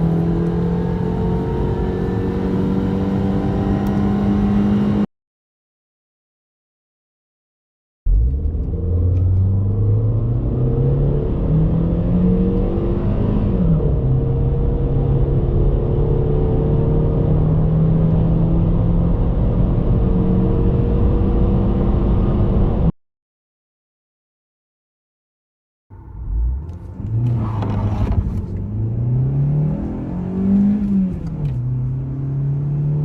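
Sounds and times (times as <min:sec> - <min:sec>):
car engine accelerating: 0:00.0 - 0:05.1, 0:08.1 - 0:22.9, 0:25.9 - 0:33.0
gear upshift: 0:26.2 - 0:32.0.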